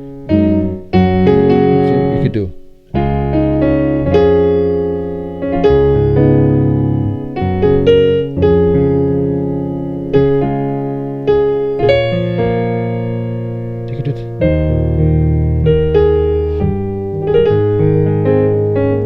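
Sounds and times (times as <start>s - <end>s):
piano playing gospel chords: 0.0s - 19.0s.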